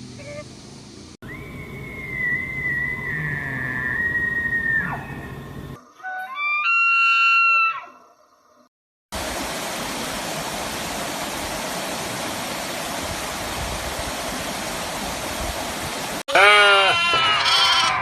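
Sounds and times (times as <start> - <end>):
sheep bleating: 16.3 - 18.0.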